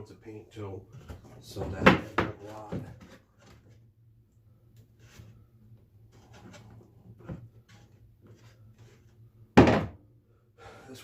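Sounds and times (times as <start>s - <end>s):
faint ticks and scrapes: 4.8s - 9.2s.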